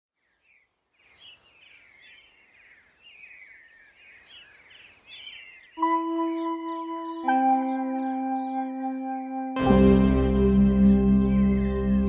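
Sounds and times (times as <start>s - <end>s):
birds twittering: 0.2s - 9.5s, 10.5s - 12.0s
electronic ambient music: 5.8s - 12.0s.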